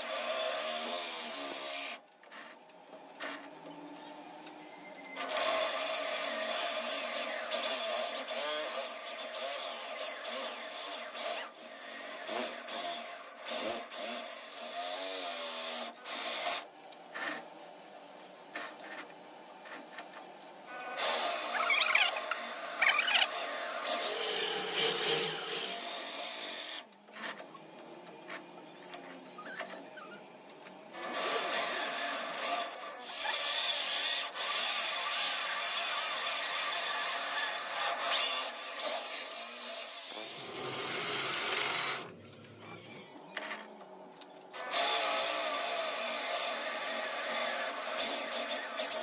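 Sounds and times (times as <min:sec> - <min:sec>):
power tool working metal: 0:21.0 - 0:26.9, 0:44.6 - 0:49.0.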